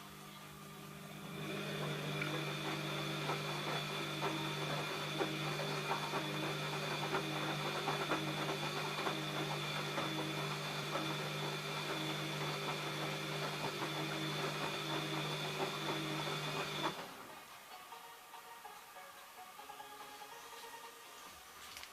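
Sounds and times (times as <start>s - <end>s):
washing machine motor humming: 0.0s - 17.4s
drum knocking and clicking: 2.0s - 17.0s.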